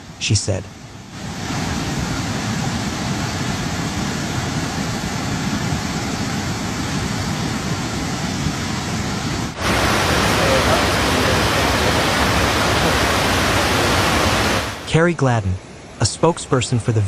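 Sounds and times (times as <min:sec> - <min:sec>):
floodwater roaring: 0:09.5 - 0:15.0.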